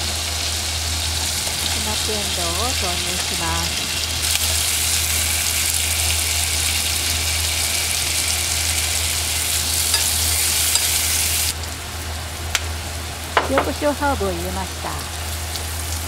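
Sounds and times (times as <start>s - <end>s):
peas sizzling in a frying pan: 0.1s - 11.6s
chopsticks turning pods: 9.5s - 11.2s.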